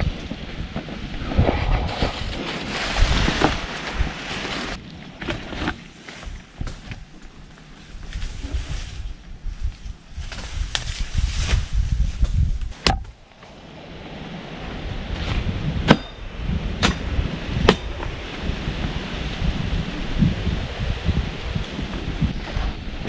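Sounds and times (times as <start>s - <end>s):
wind rumbling on microphone: 0.0s - 23.0s
machete chopping wood: 12.8s - 13.2s, 16.8s - 17.9s.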